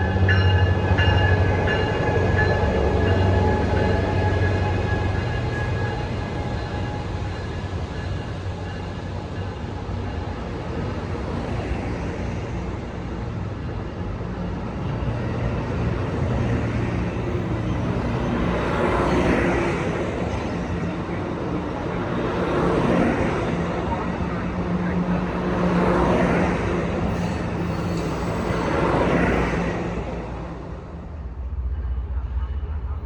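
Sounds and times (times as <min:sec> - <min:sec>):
diesel train engine rumble: 0:00.0 - 0:33.0.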